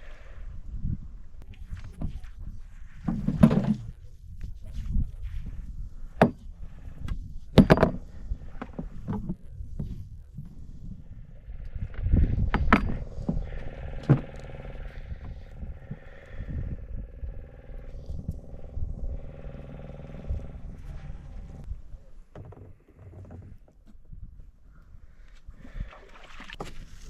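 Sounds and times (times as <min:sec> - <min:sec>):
knocks and thuds on a boat: 0:03.0 - 0:04.0, 0:06.2 - 0:06.7, 0:07.5 - 0:10.5
low rumble: 0:05.3 - 0:22.2
steady hum: 0:10.3 - 0:21.9.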